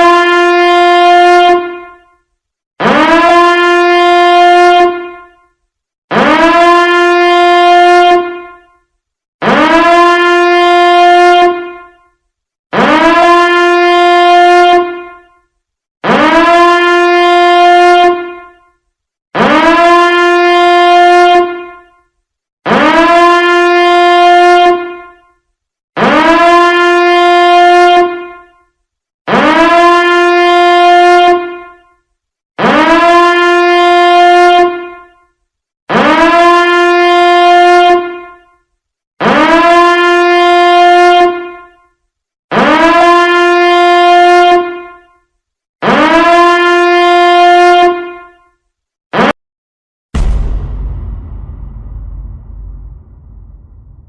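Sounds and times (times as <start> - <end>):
buzzy horn blast: 50.2 - 54.0.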